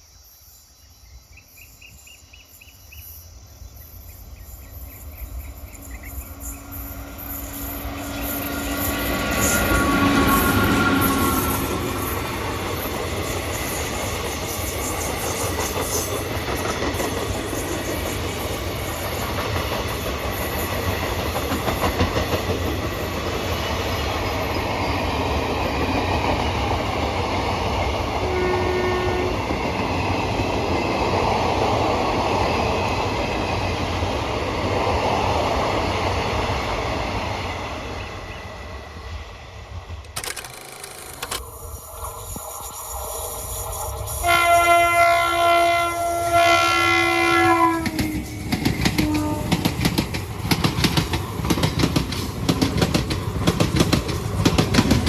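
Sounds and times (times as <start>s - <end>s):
train rumbling past: 0.8s - 40.2s, 41.0s - 55.0s
locomotive horn blast: 7.6s - 12.0s, 28.2s - 29.4s, 44.1s - 48.2s, 49.0s - 49.7s.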